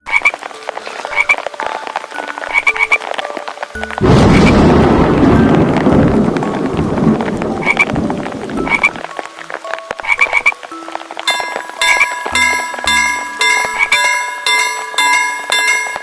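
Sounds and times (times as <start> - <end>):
frogs croaking: 0.0 - 16.0
loud rumbling noise: 4.0 - 8.8.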